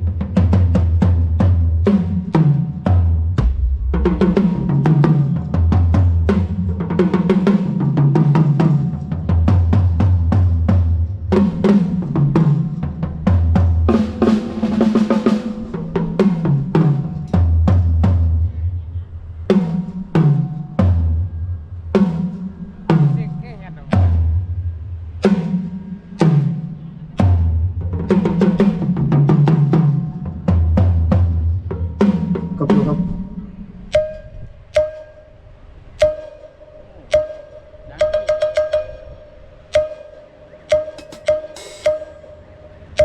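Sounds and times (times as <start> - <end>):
drum kit playing: 0.0 - 18.4, 22.0 - 34.2, 40.7 - 42.3.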